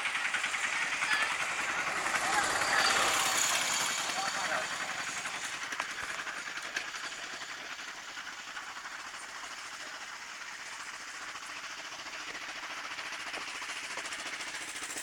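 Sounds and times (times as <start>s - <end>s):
motorcycle engine drone: 0.0s - 5.6s.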